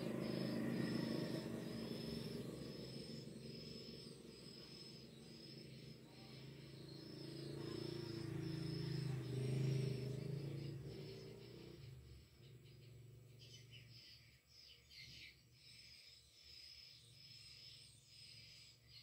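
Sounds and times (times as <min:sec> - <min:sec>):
low droning: 0:00.0 - 0:12.0.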